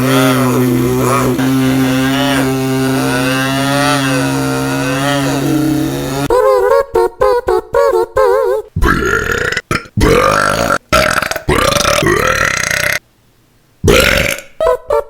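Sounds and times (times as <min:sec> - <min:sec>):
man making mouth sound effects: 0:00.0 - 0:06.3, 0:08.8 - 0:13.0, 0:13.8 - 0:14.6.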